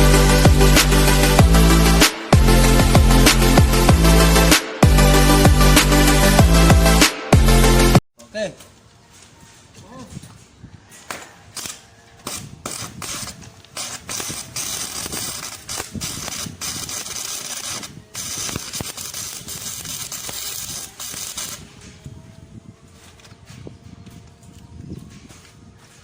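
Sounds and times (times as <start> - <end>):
arc welding crackling hiss: 11.6 - 23.0.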